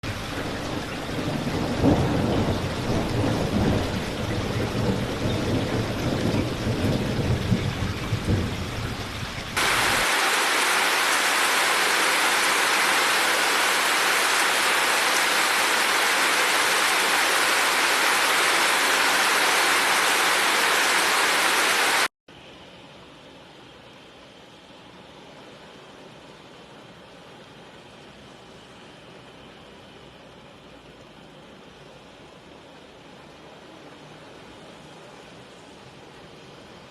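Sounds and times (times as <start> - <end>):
rain falling: 0.0 - 22.1
heavy rain hissing: 0.1 - 22.1.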